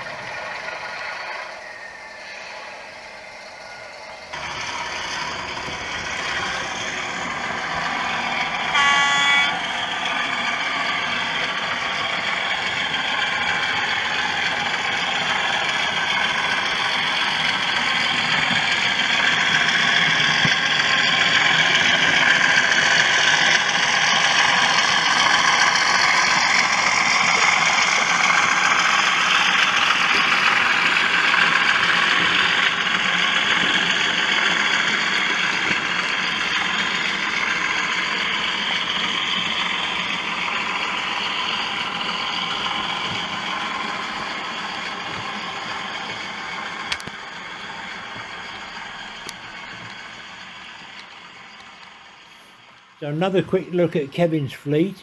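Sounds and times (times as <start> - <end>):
model locomotive engine sound: 0.0 - 55.0
horn toot: 8.7 - 9.6.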